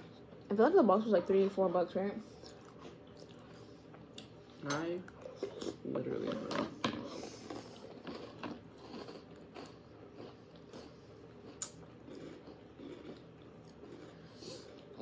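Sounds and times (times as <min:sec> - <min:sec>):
chewing crunchy cereal: 0:02.3 - 0:15.0.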